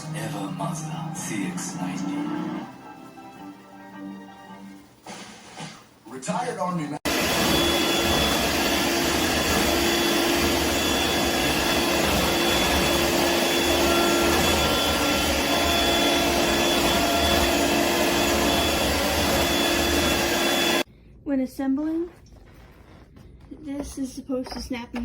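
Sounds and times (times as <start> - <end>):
stick vacuum cleaner running: 7.1 - 20.9.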